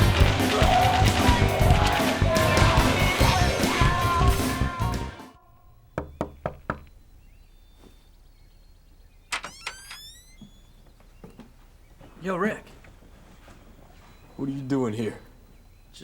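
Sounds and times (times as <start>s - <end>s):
music: 0.0s - 5.4s
knocks on a door: 6.0s - 6.8s.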